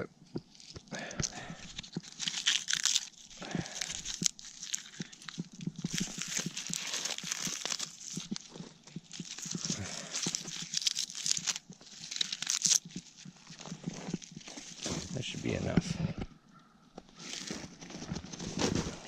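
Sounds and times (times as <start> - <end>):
dry tinder crackling and snapping: 0.4 - 15.6.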